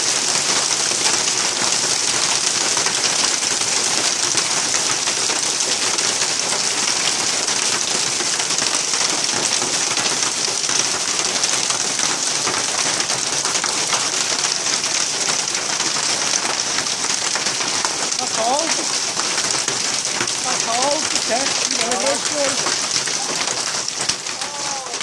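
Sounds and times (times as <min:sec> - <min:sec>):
heavy rain: 0:00.0 - 0:25.0
drops hitting surfaces: 0:15.3 - 0:25.0.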